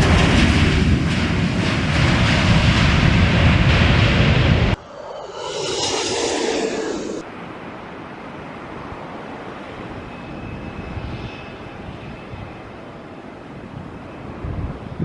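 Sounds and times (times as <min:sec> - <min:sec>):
jet engines whining: 0:02.7 - 0:07.5.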